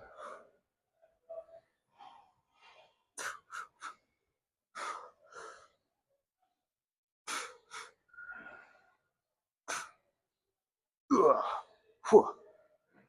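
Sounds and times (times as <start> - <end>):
man breathing hard: 2.6 - 4.0, 4.8 - 5.8, 7.3 - 9.0, 9.7 - 10.0
man groaning: 11.1 - 12.3.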